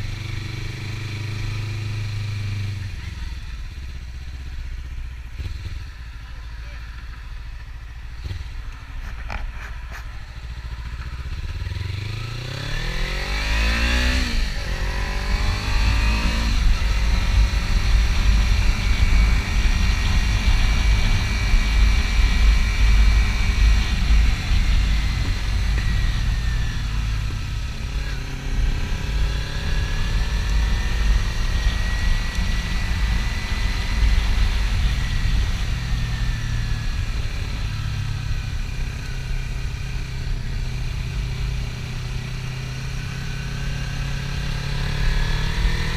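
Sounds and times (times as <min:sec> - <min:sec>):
motorcycle engine accelerating: 0:00.0 - 0:45.9
wind noise rumble: 0:12.2 - 0:38.8.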